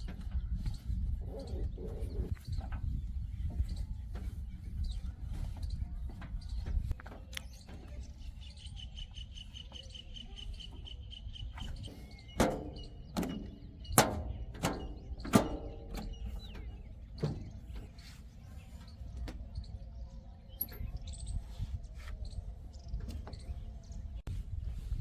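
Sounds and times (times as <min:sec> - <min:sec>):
bird chirping: 0:00.0 - 0:24.4
low engine rumble: 0:00.0 - 0:25.0
sharp metallic clanks: 0:11.8 - 0:17.6.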